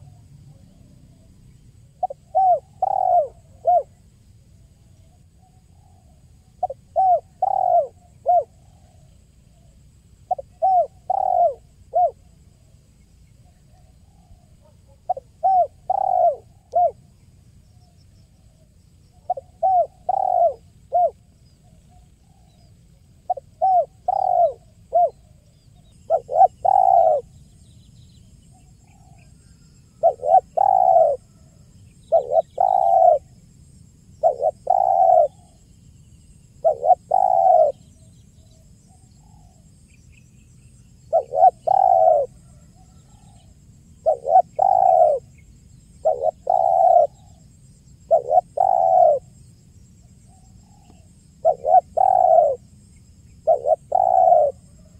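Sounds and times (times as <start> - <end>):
dove cooing: 0.0 - 4.0, 4.8 - 12.4, 13.5 - 17.1, 18.3 - 22.6, 23.2 - 27.4, 28.8 - 33.4, 34.2 - 35.6, 36.6 - 38.0, 41.0 - 49.3, 50.3 - 54.9.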